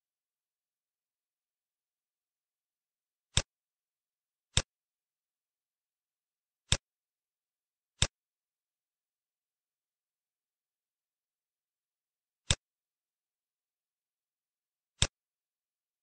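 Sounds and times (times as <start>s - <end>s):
computer mouse clicks: 8.0s - 8.2s, 12.5s - 12.7s, 15.0s - 15.2s.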